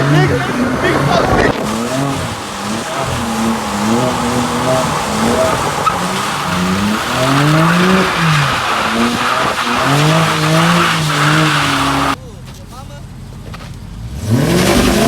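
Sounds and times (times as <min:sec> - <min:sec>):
car engine revving: 0:00.0 - 0:12.2, 0:13.0 - 0:15.0
tire squeal: 0:00.0 - 0:12.2.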